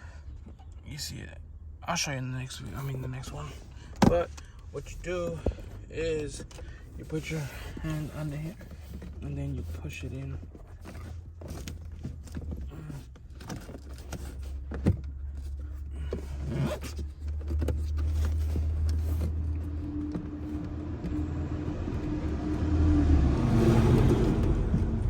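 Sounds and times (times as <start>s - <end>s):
seatbelt parts clicking and scraping: 2.6s - 22.3s.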